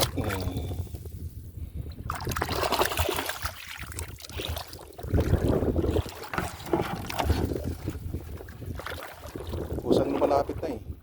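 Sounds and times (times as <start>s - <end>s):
wind rumbling on microphone: 0.0s - 11.0s
seawater sloshing and splashing: 2.0s - 10.8s.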